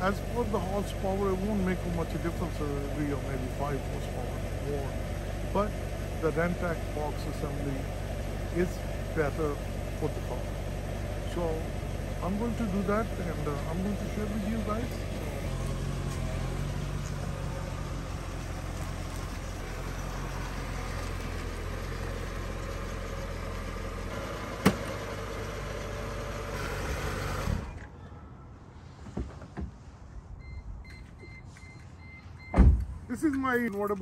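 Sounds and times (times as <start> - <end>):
car engine running: 0.0 - 27.8
loud thump: 24.6 - 24.9, 32.5 - 32.9.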